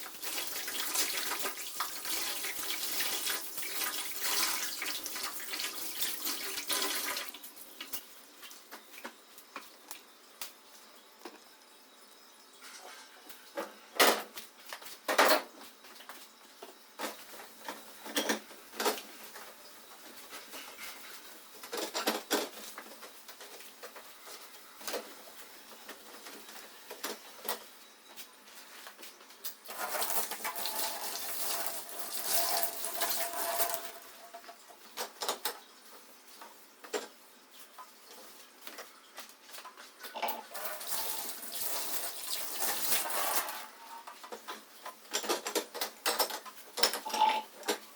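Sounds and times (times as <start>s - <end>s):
tap water running: 0.0s - 7.9s, 29.7s - 34.9s, 40.1s - 43.9s
dishes clinking and knocking: 40.1s - 41.3s, 45.1s - 47.8s.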